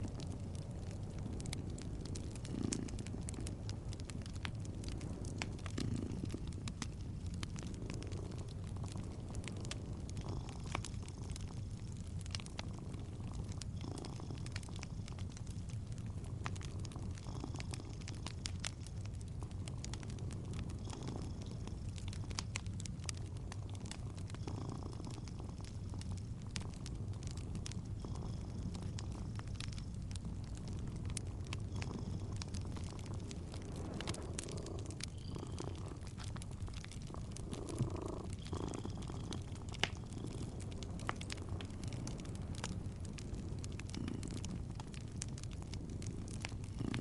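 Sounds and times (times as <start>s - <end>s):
cat purring: 0.0s - 47.0s
wood fire crackling: 0.0s - 47.0s.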